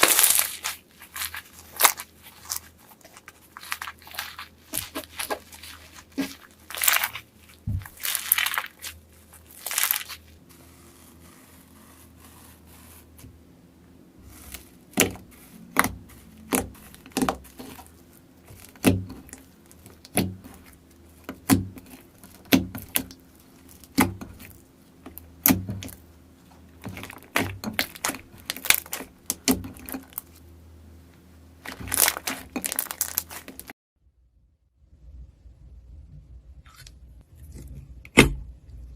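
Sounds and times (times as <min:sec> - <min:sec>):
slime crackling and popping: 0:00.0 - 0:13.0, 0:14.3 - 0:26.0, 0:26.8 - 0:30.3, 0:31.6 - 0:33.7.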